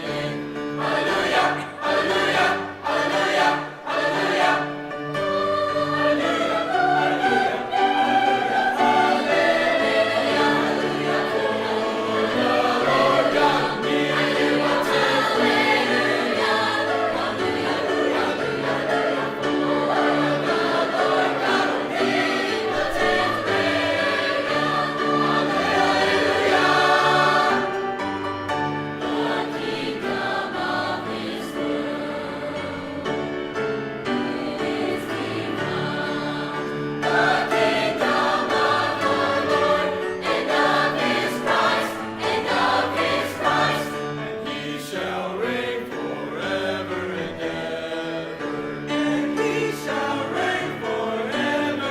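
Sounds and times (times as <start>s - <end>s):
choir singing: 0.0s - 51.9s.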